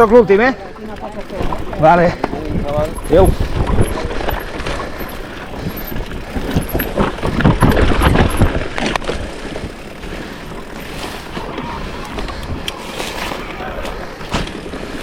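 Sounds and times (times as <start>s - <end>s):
bike rattling over rocks: 0.0s - 15.0s
wind noise on microphone: 2.3s - 9.9s.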